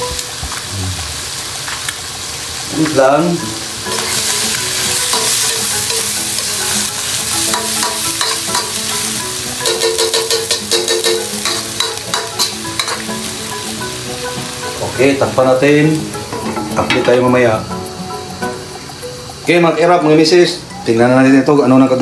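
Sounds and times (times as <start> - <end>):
food sizzling in hot pan: 0.0 - 22.0
utensil clacking against pan: 7.4 - 9.0, 9.6 - 13.1, 16.2 - 17.3.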